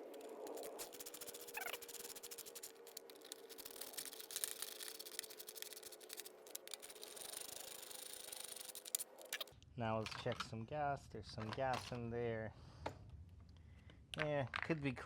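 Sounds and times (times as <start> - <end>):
small metal parts clicking: 0.0 - 10.5.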